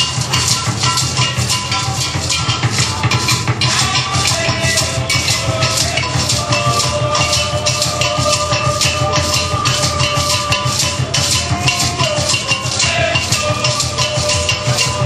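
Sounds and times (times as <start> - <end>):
hand drums playing rhythm: 0.0 - 15.0
held melodic note: 0.0 - 15.0
shakers: 0.0 - 15.0.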